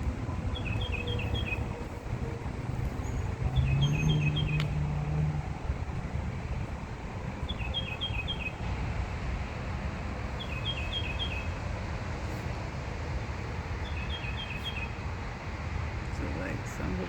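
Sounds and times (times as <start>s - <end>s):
steady low rumble: 0.0s - 17.0s
small bird chirping: 2.9s - 4.8s.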